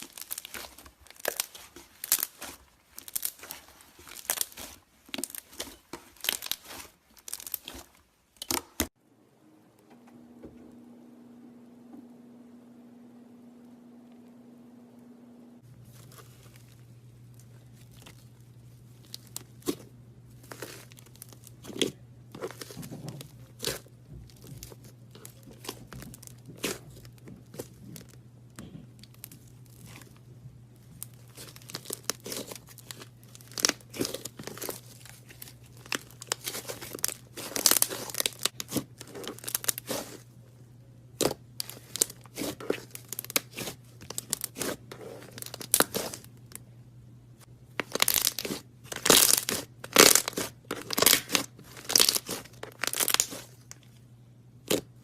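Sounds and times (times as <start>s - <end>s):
slime crackling and tearing: 0.0s - 8.9s, 20.4s - 22.8s, 23.4s - 28.2s, 30.8s - 40.3s, 41.2s - 46.6s, 47.8s - 53.8s, 54.6s - 55.0s
steady low hum: 8.9s - 55.0s.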